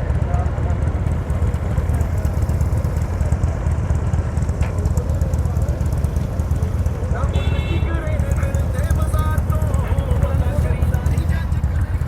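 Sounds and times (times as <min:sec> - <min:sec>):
faint voices: 0:00.0 - 0:12.0
motorcycle engine rumbling: 0:00.0 - 0:12.0.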